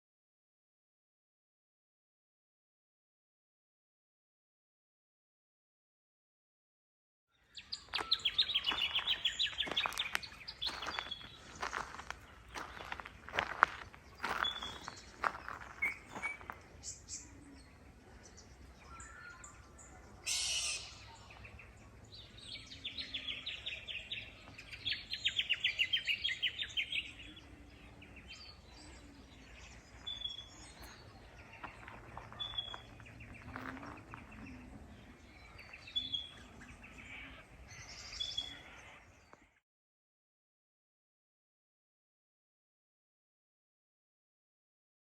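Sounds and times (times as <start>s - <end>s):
bird trill: 7.6s - 17.4s, 18.8s - 21.6s.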